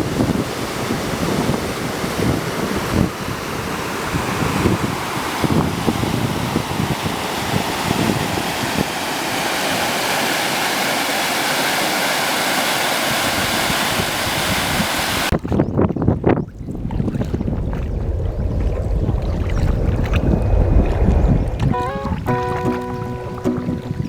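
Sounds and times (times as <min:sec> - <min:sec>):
rushing water: 0:00.0 - 0:24.0
low splashes and knocks: 0:15.3 - 0:24.0.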